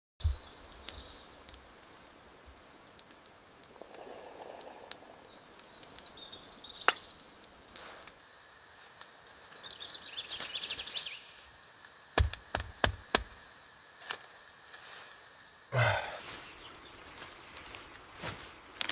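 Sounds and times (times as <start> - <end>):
birds chirping: 0.2 - 3.1, 3.8 - 8.1, 8.9 - 11.5, 15.7 - 18.8.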